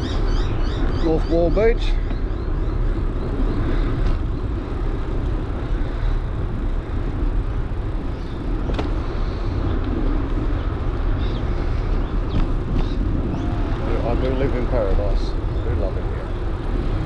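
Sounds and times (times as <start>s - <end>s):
bicycle tyres rolling on path: 0.0s - 17.0s
wind over microphone: 0.0s - 17.0s.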